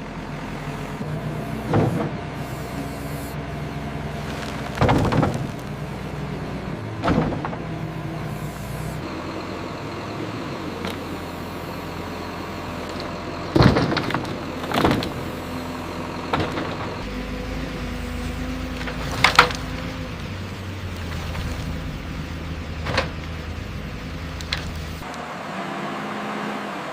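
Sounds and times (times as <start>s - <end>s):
machine engine running: 0.0s - 22.8s.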